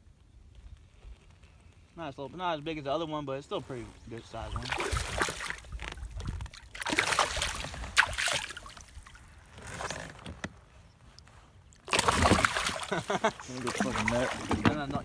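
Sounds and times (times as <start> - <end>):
water splashing against kayak: 3.7 - 10.1, 11.8 - 15.0.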